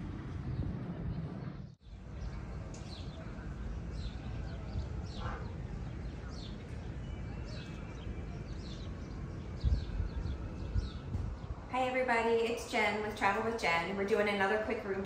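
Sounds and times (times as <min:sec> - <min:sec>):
low wind rumble: 0:00.0 - 0:15.0
small birds chirping: 0:01.7 - 0:11.6.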